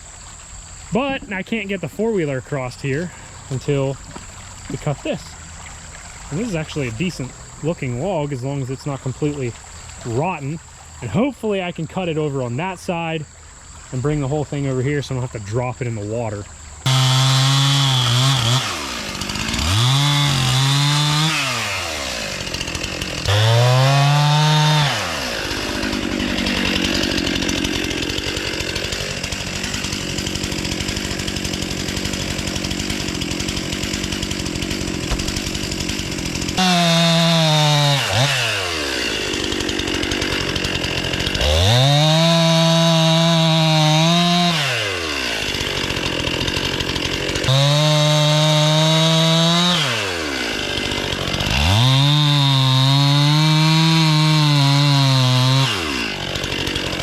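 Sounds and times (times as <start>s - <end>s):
chainsaw cutting log: 0.1s - 13.1s, 13.8s - 57.0s
chainsaw revving: 6.2s - 9.4s, 16.8s - 57.0s.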